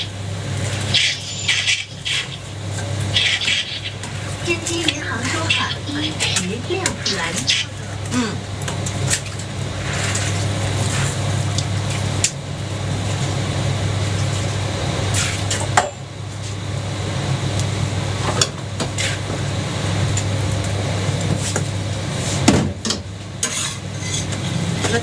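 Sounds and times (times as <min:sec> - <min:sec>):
constant low hum: 0:00.0 - 0:25.0
spatula scrapes and knocks: 0:23.4 - 0:24.3.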